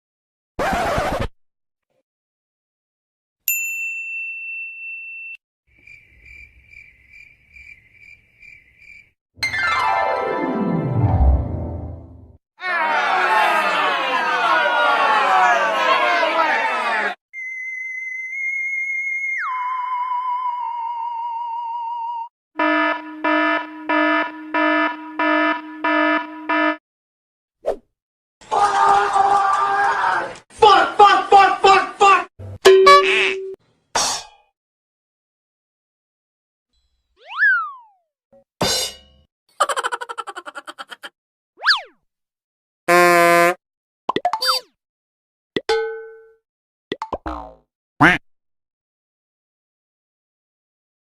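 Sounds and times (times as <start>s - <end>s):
cricket chirping sound effect: 5.7s - 9.2s
buzzy alarm-like beep: 22.6s - 26.8s
bright ding sound effect: 32.6s - 33.6s.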